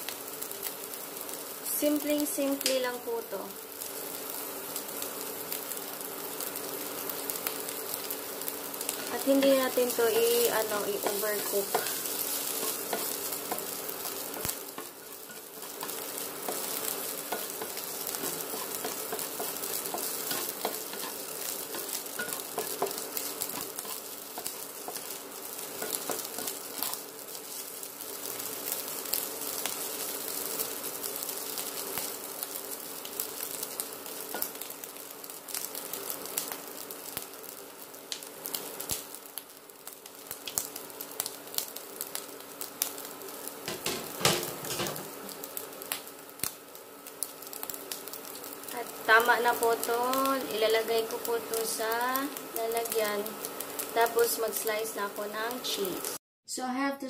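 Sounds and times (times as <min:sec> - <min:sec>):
ham sizzling in a frying pan: 0:00.0 - 0:56.2
wooden spatula stirring: 0:10.1 - 0:28.3.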